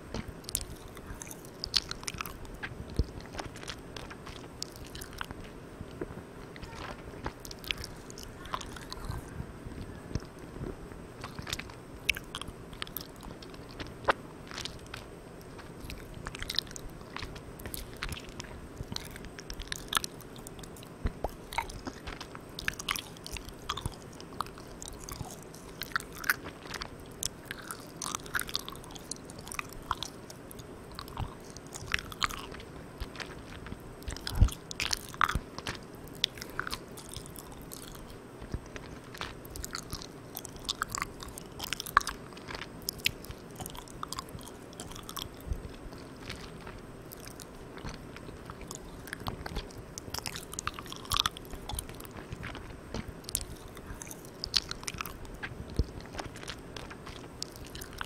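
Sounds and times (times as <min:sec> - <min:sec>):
mouth chewing sticky candy: 0:00.0 - 0:58.0
steady recorder hiss: 0:00.0 - 0:58.0.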